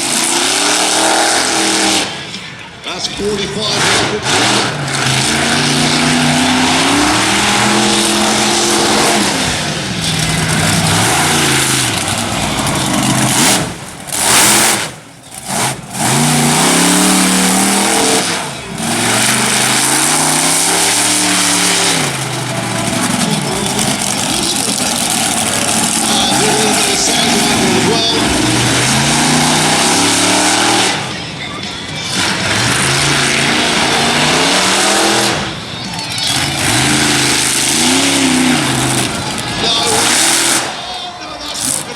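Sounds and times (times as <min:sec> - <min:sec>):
monster truck engine revving: 0:00.0 - 0:41.9
loud rushing noise: 0:03.2 - 0:31.2.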